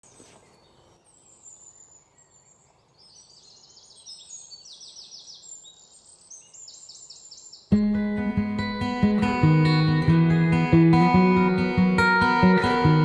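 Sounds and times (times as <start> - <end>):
faint birdsong chirps: 0.0 - 10.2.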